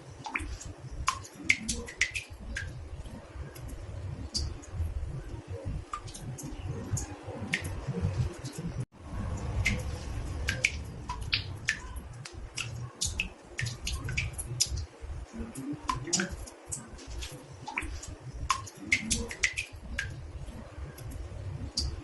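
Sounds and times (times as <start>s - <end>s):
water drops plinking into bathtub: 0.2s - 4.9s, 9.3s - 20.3s.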